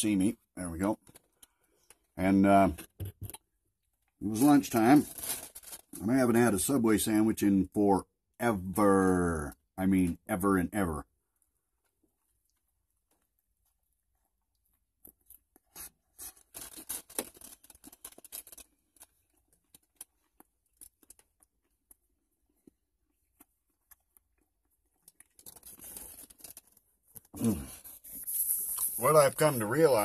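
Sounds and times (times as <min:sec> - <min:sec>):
man talking: 0:00.0 - 0:01.0, 0:02.2 - 0:02.8, 0:04.2 - 0:05.1, 0:06.0 - 0:11.0, 0:28.8 - 0:30.0
rustling handling noise: 0:04.2 - 0:06.1, 0:15.6 - 0:21.4
crunchy chewing: 0:12.0 - 0:29.0.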